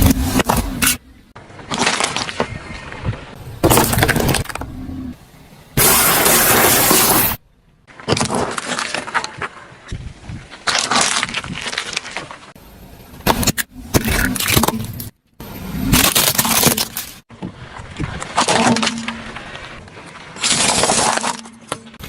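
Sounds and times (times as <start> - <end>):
car tyres crushing brittle objects: 0.0 - 5.0, 5.8 - 15.2, 15.8 - 22.0.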